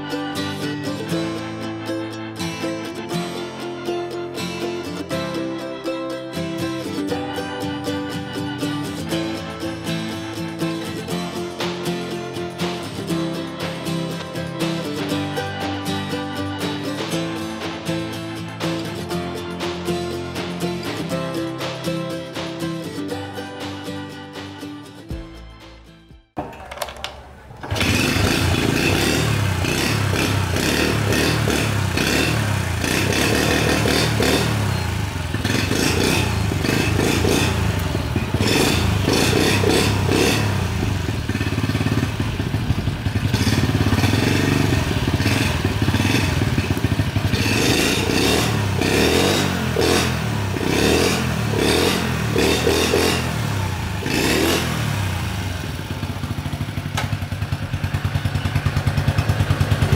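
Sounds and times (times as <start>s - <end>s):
small motorcycle engine running: 27.0s - 59.9s.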